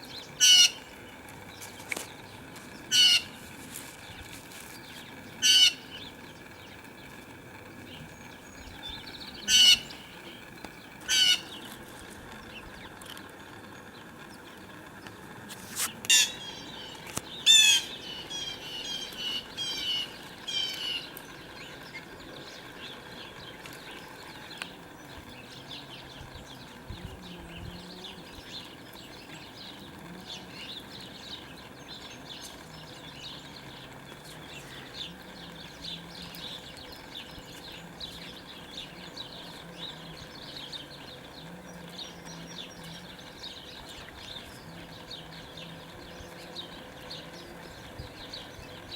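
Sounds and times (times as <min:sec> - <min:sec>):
loud sharp bird calls: 0:00.0 - 0:02.0, 0:02.8 - 0:03.4, 0:04.9 - 0:07.2, 0:07.9 - 0:11.8, 0:16.1 - 0:26.7
small birds chirping: 0:00.0 - 0:48.9.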